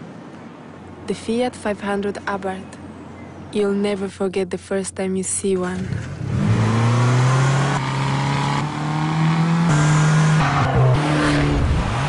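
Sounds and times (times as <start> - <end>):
car engine revving loudly: 6.2 - 12.0.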